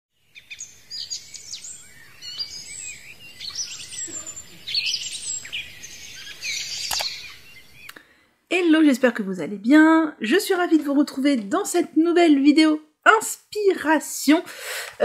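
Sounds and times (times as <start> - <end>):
birds chirping and singing: 0.2 - 8.0
sharp click: 6.8 - 7.2.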